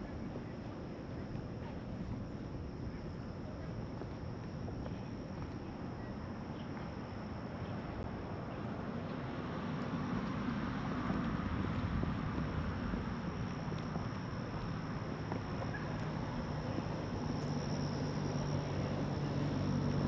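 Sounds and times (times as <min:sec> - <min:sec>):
low outdoor rumble: 0:00.0 - 0:20.0
high-pitched insect trill: 0:13.0 - 0:20.0.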